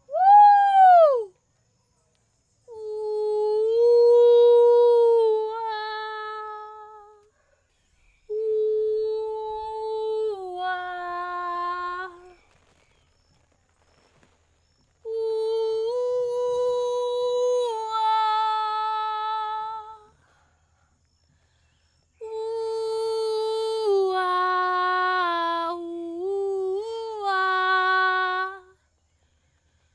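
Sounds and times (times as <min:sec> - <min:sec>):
woman humming long notes: 0:02.7 - 0:07.2, 0:08.3 - 0:12.3, 0:15.1 - 0:20.1, 0:22.2 - 0:28.7.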